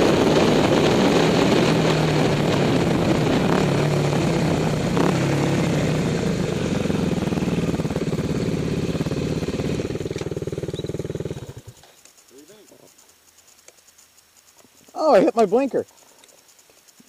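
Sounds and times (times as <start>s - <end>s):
wind on microphone: 0.0s - 6.8s
dirt bike engine running: 0.0s - 17.0s.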